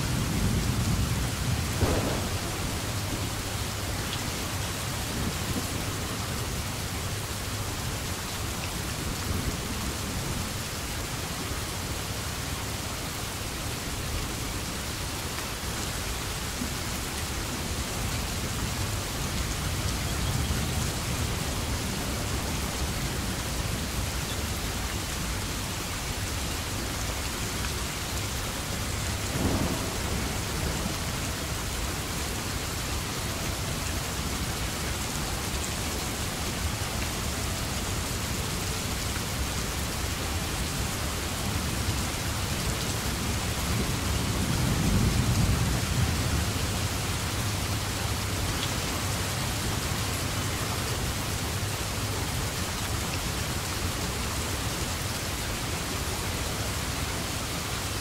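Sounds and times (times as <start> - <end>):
thunder rumbling: 0.0 - 6.6, 28.3 - 35.4
steady rain falling: 0.0 - 58.0.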